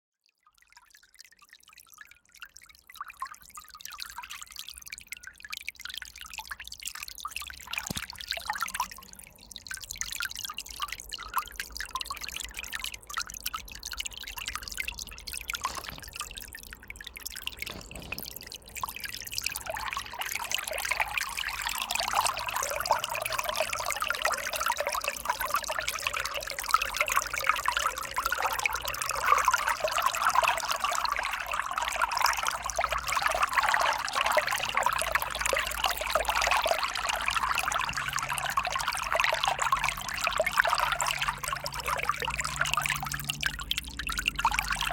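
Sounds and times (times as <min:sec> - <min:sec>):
river water trickling: 0:00.2 - 0:44.9
small water splashes: 0:00.5 - 0:44.9.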